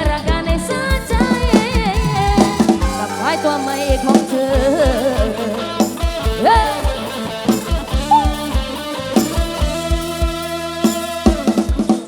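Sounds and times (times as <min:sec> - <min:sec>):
held keyboard notes: 0:00.0 - 0:10.8
plucked guitar melody: 0:01.9 - 0:11.4.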